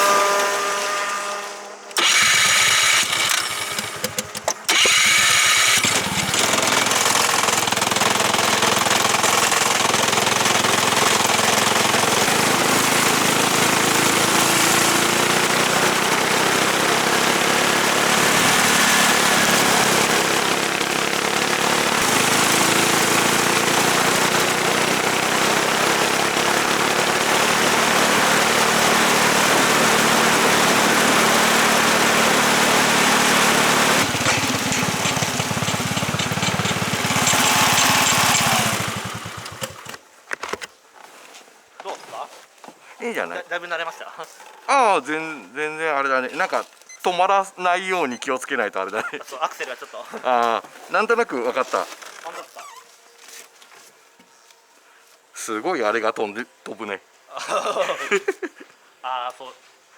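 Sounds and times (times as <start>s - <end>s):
racing kart engine: 0.0s - 40.0s.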